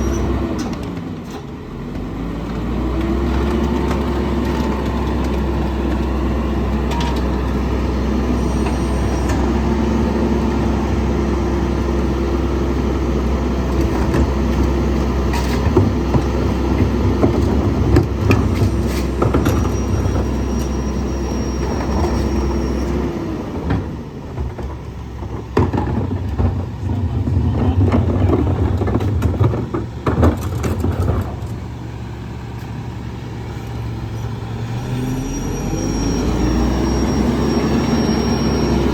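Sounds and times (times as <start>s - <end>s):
garbage truck engine running: 0.0s - 38.9s
hydraulic whine: 4.4s - 24.8s, 32.6s - 38.9s
trash knocking and crunching: 13.6s - 20.6s, 23.6s - 31.9s.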